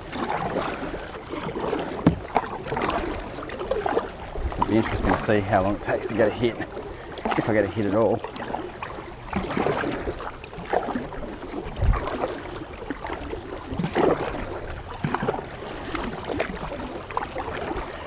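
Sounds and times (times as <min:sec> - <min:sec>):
paddle splashing in water: 0:00.0 - 0:18.0.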